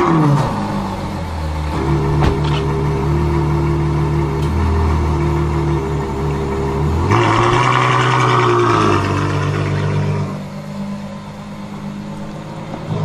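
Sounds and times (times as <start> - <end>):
sports car engine revving: 0.0 - 13.0.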